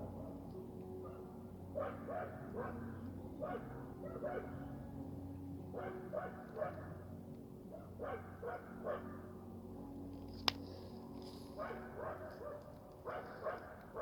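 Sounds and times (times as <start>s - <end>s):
dog barking: 1.8s - 2.8s, 3.4s - 4.7s, 5.8s - 6.9s, 8.0s - 9.1s, 11.6s - 14.0s.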